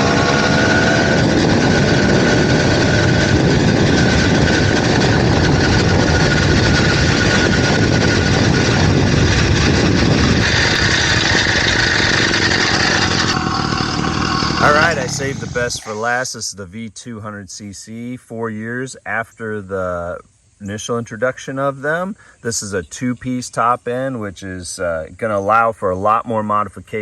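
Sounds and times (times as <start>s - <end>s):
two-stroke engine running: 0.0s - 16.0s.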